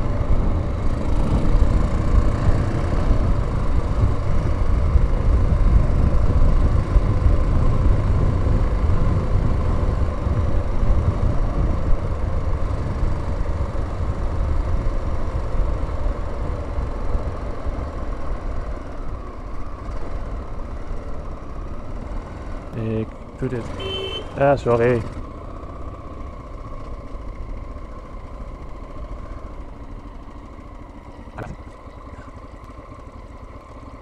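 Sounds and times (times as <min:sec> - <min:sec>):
wind noise on microphone: 0:00.0 - 0:15.2
motorcycle engine running: 0:00.0 - 0:34.0.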